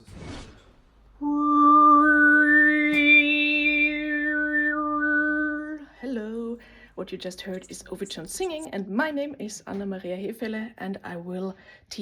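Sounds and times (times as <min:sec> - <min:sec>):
woman overtone singing: 0:01.2 - 0:06.6.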